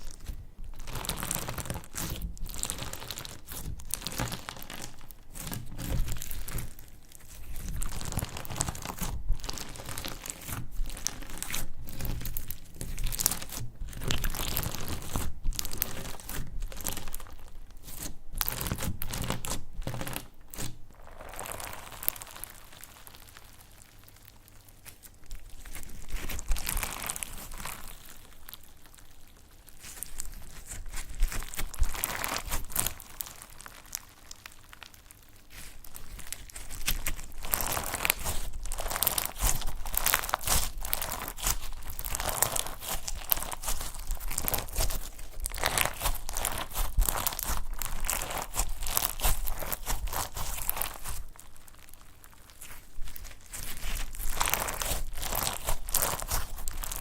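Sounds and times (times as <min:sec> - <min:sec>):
slime crackling when squeezed: 0:00.0 - 0:57.0.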